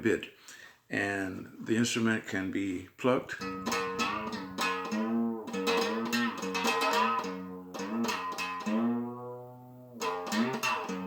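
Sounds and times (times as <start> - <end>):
plucked string with bending pitch: 3.4 - 11.0.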